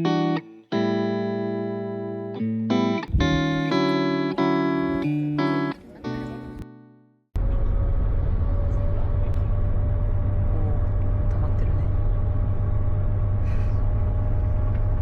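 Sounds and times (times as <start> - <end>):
low rumble of moving vehicle: 3.1 - 3.7, 7.4 - 15.0.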